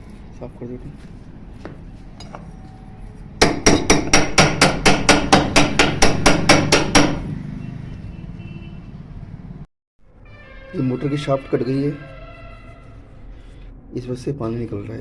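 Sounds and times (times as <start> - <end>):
hammer striking metal: 3.4 - 7.3.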